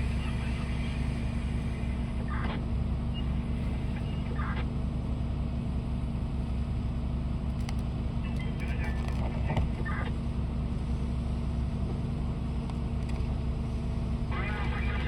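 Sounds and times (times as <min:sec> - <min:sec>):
heavy diesel engines droning: 0:00.0 - 0:15.0.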